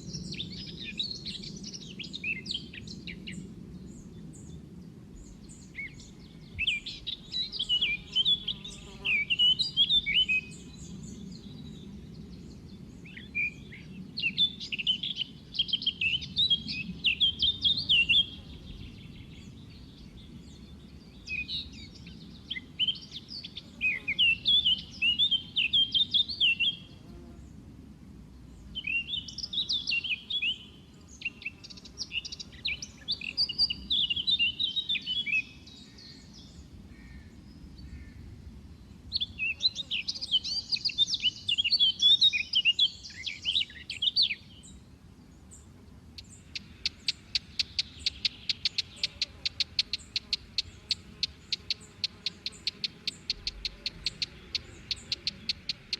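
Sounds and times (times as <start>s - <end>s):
bird twittering chirps: 5.2s - 11.8s, 13.0s - 26.9s, 28.8s - 36.4s, 39.1s - 44.8s, 46.2s - 55.9s.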